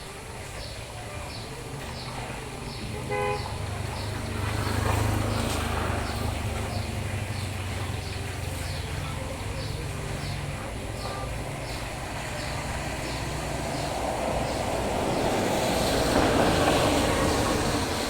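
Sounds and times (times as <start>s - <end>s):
passing vehicle engine and road noise: 0.0s - 18.0s
vehicle horn toot: 2.8s - 4.1s.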